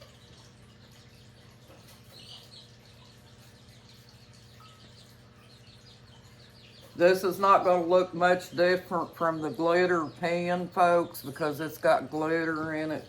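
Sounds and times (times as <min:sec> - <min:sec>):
faint high bird chirp: 0:01.3 - 0:07.9.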